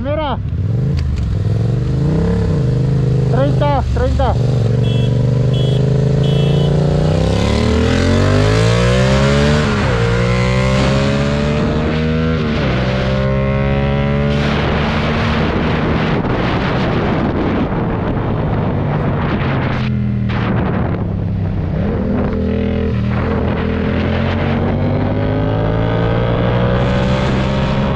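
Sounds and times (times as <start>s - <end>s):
motorcycle engine accelerating: 0.4s - 27.9s
wind noise on microphone: 6.8s - 27.9s.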